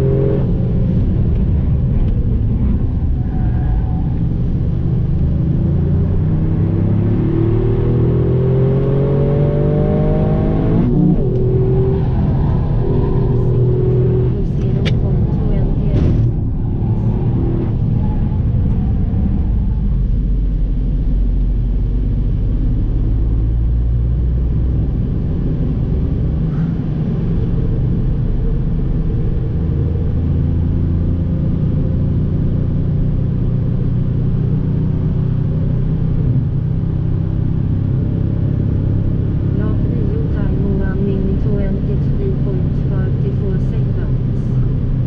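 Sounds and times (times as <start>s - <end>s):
car engine droning: 0.0s - 45.0s
road noise inside car cabin: 0.0s - 45.0s.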